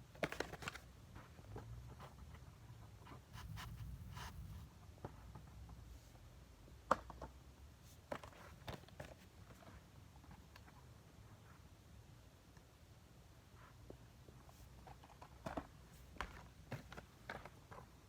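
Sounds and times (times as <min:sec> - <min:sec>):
low room hum: 0:01.2 - 0:07.8.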